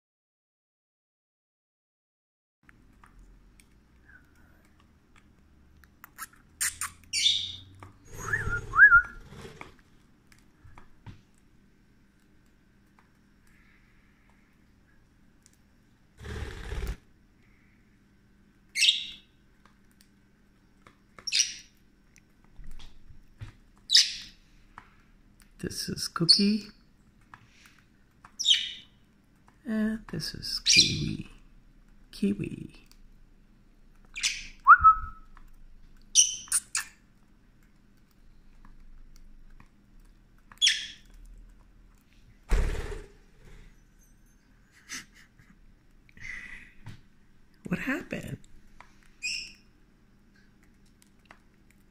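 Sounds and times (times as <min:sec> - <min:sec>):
parrots chirping shrilly: 0:06.6 - 0:08.6, 0:18.8 - 0:19.2, 0:21.3 - 0:21.7, 0:23.9 - 0:24.3, 0:28.4 - 0:28.8, 0:34.2 - 0:34.6, 0:36.2 - 0:36.9, 0:40.6 - 0:41.0, 0:49.2 - 0:49.6.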